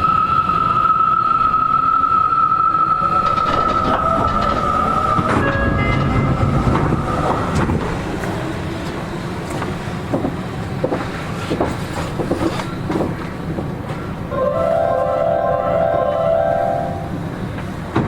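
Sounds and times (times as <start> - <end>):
wheel and rail rumble: 0.0 - 18.0
rail-joint clicks: 2.9 - 14.2, 16.9 - 18.0.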